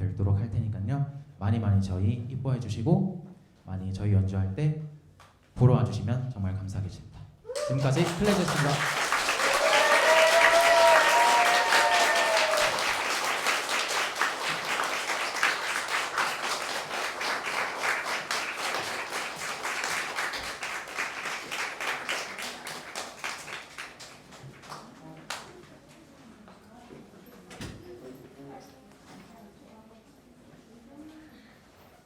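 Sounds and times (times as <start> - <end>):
audience applauding: 7.5 - 25.4.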